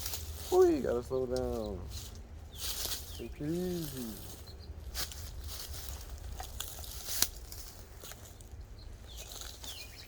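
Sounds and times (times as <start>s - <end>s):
twigs and brush rustling: 0.0s - 10.0s
twig snapping: 6.3s - 8.2s.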